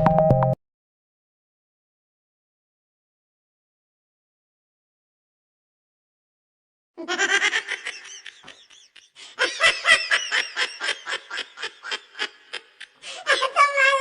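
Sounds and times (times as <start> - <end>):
person laughing loudly: 7.0 - 13.7.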